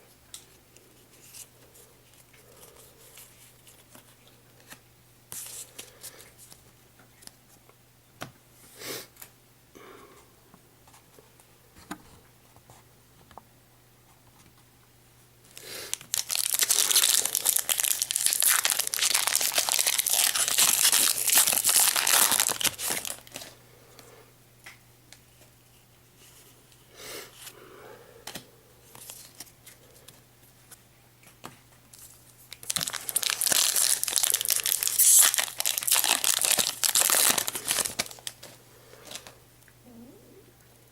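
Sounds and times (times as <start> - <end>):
foil wrapper tearing and crinkling: 15.5 - 23.6, 32.0 - 39.3.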